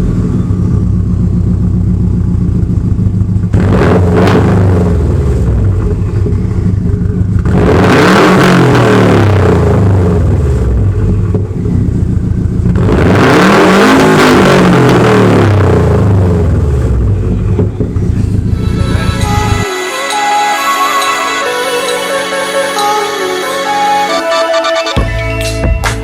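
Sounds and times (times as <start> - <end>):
car engine revving: 0.0 - 19.7.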